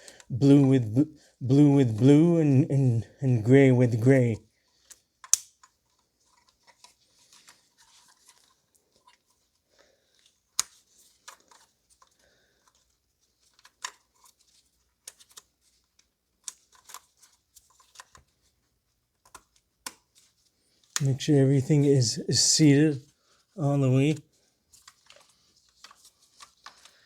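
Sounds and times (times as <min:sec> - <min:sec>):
plastic connector clicks: 0:04.9 - 0:05.7.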